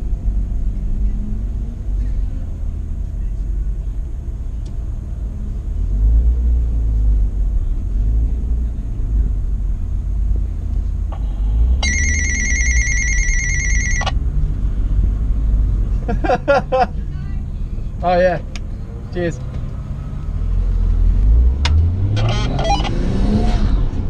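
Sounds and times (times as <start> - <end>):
high trilling electronic ring: 11.8 - 14.1.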